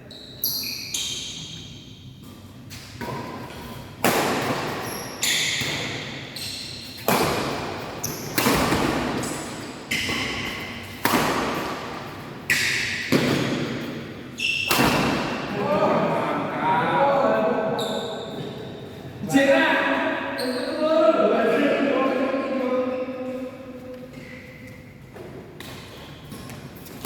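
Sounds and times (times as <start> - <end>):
shoes squeaking on court floor: 0.0 - 4.0, 4.6 - 15.5, 17.7 - 19.0, 20.3 - 21.1, 22.4 - 27.0
racket hitting shuttlecock: 2.7 - 15.4.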